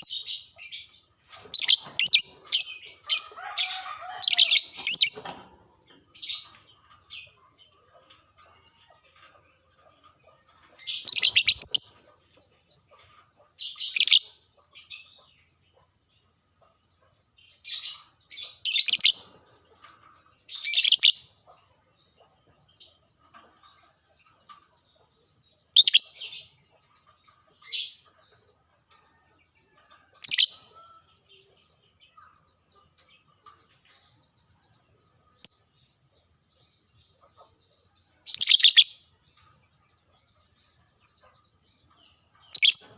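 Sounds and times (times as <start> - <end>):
lovebird shrill chirping: 11.0 - 11.9.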